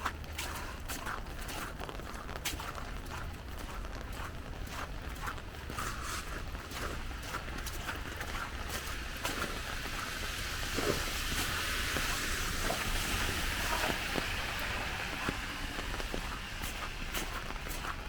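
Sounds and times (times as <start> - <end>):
footsteps in slush: 0.0 - 18.0
tyres hissing on wet street: 0.0 - 18.0.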